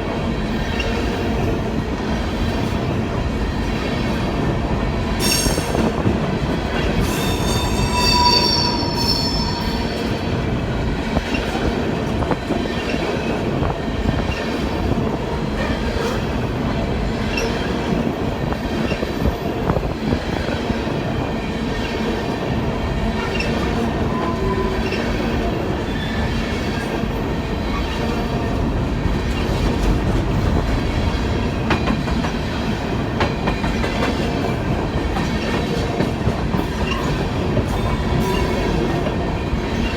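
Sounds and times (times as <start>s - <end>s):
train rumbling on rails: 0.0s - 39.9s
wheel squeal: 7.1s - 10.0s.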